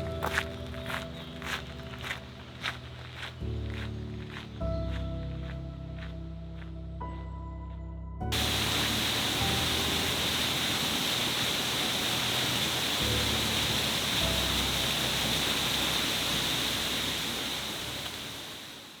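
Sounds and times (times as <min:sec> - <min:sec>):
soft low sustained music notes: 0:00.0 - 0:18.2
waterfall rushing: 0:08.3 - 0:19.0.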